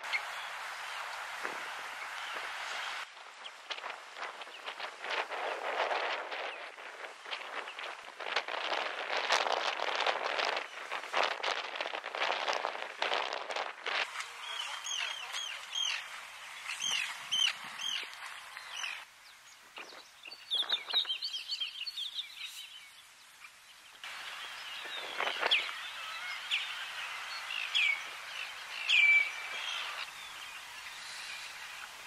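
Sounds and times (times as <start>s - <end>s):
steady outdoor hiss: 0.0s - 32.0s
wild birds calling: 14.4s - 19.4s, 23.4s - 32.0s.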